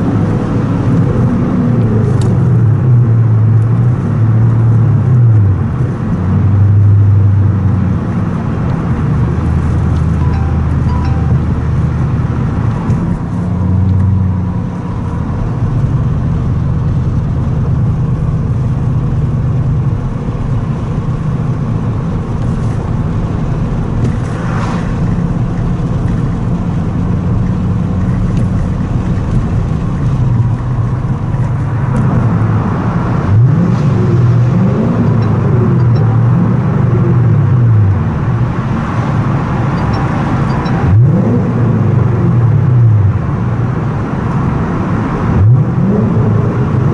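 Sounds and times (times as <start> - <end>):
car engine revving in a tunnel: 0.0 - 46.9.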